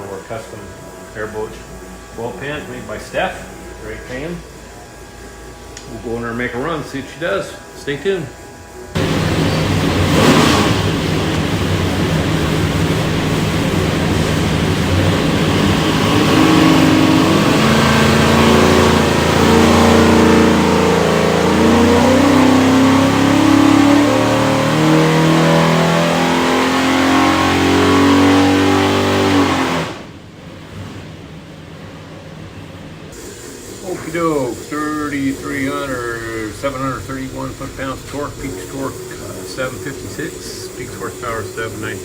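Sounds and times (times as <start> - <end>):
engine revving under load: 8.9 - 31.4, 33.9 - 42.0.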